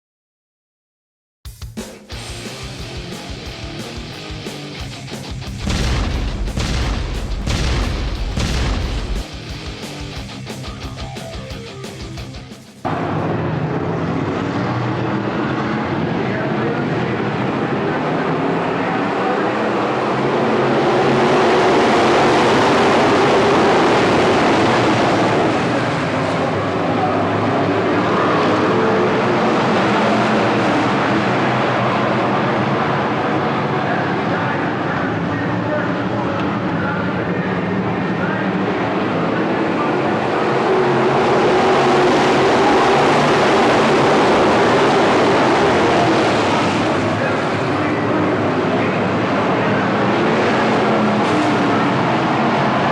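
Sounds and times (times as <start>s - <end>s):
stock car engines racing: 12.8s - 52.9s.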